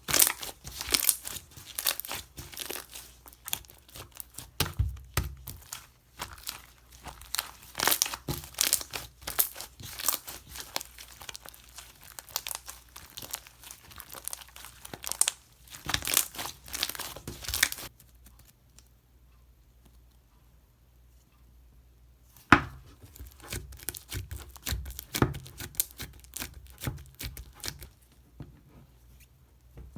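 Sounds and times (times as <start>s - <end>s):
slime crackling by hand: 0.0s - 18.5s, 22.7s - 28.0s.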